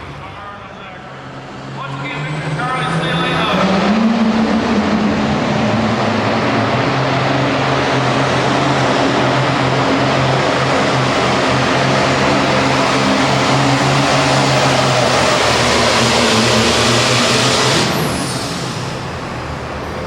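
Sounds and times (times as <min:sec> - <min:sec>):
diesel tractor engine at high revs: 0:01.1 - 0:20.0.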